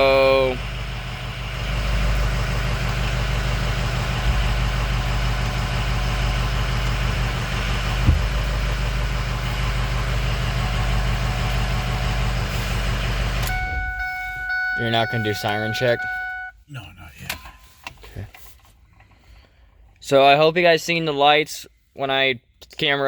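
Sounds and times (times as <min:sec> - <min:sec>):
fire truck engine idling: 0:00.0 - 0:16.5
brief knock: 0:08.0 - 0:08.4.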